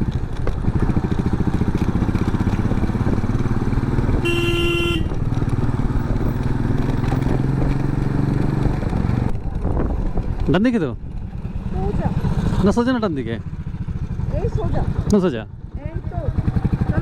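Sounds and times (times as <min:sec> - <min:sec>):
motorcycle engine running: 0:00.0 - 0:17.0
horn honk: 0:04.1 - 0:05.2.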